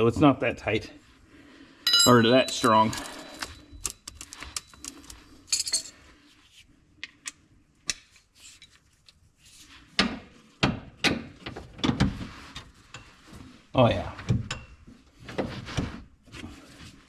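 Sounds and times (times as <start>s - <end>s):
metal tools clinking: 1.9s - 6.0s.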